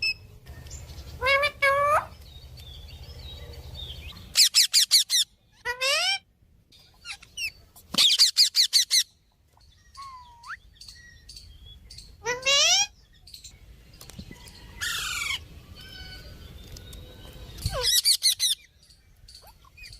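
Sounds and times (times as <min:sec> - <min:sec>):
parrot calling: 0:01.2 - 0:02.2, 0:04.3 - 0:06.3, 0:06.9 - 0:09.1, 0:10.0 - 0:10.7, 0:12.2 - 0:13.0.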